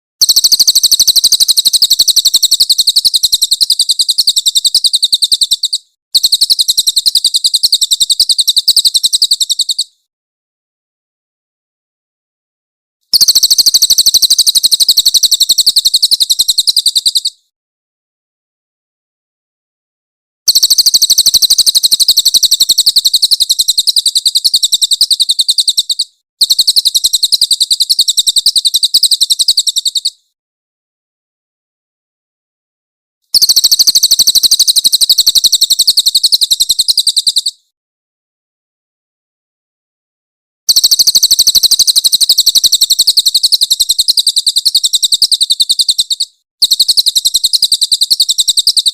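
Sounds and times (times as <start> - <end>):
bird harsh rattling call: 0.2 - 9.9, 20.5 - 30.2, 33.4 - 37.5, 40.7 - 48.9.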